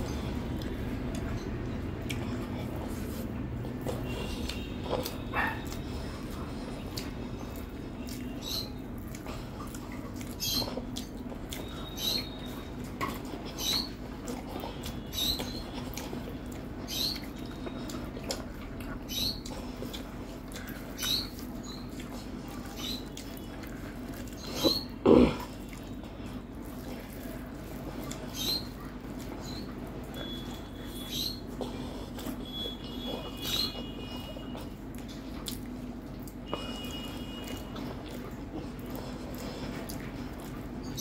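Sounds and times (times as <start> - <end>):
squeaky mouth clicks chewing: 0.1 - 26.0, 28.0 - 41.0.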